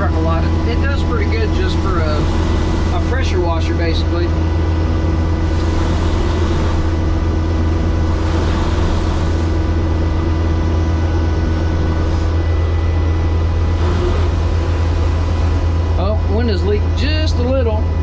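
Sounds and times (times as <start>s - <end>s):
skid steer engine running: 0.0s - 17.9s
high-pressure spray hissing: 5.5s - 7.0s, 8.1s - 9.8s, 13.7s - 14.6s.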